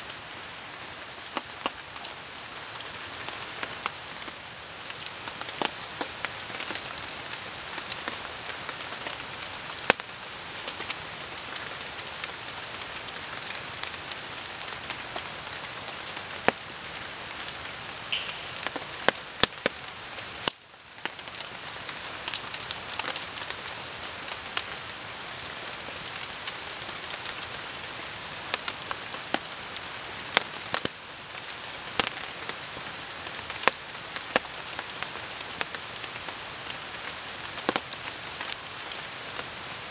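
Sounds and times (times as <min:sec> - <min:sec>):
steady rain falling: 0:00.0 - 0:39.9
campfire crackling and popping: 0:02.7 - 0:16.6, 0:17.4 - 0:25.0.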